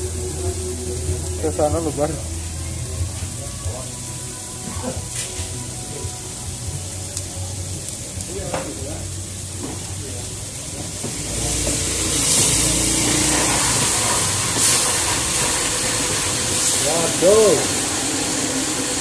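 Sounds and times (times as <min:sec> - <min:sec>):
low hum: 0:00.0 - 0:03.6
faint background music: 0:00.0 - 0:17.7
paste sizzling in a wok: 0:00.0 - 0:19.0.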